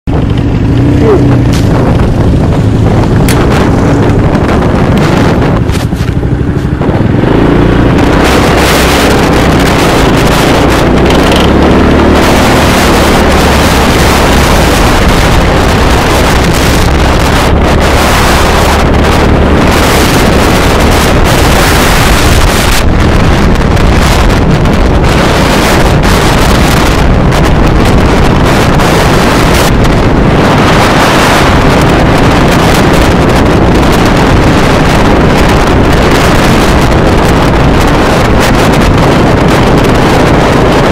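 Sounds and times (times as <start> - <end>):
low motorcycle engine drone: 0.0 - 40.9
wind rush over microphone: 0.0 - 40.9.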